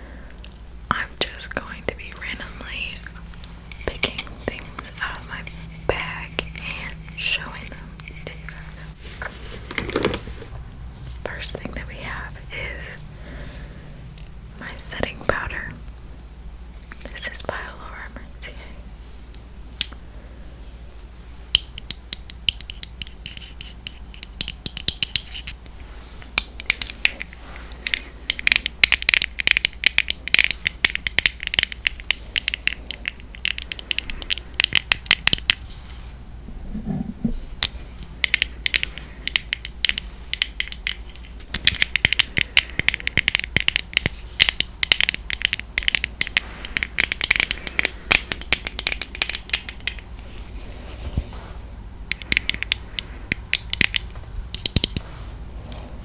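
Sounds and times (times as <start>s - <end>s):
fingernails tapping on container: 9.6s - 10.5s, 52.1s - 55.0s.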